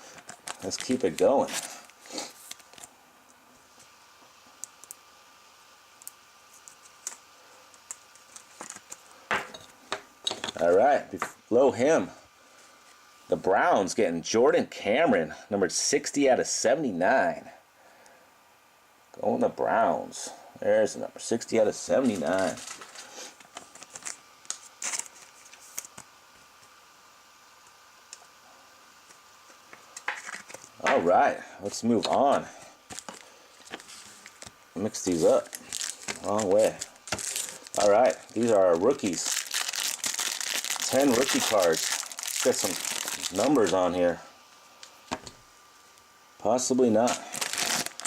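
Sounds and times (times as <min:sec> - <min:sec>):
low hiss: 0:00.0 - 0:48.0
cards rustling: 0:00.1 - 0:02.9, 0:22.0 - 0:26.1, 0:29.8 - 0:31.1, 0:31.7 - 0:43.9, 0:47.0 - 0:48.0.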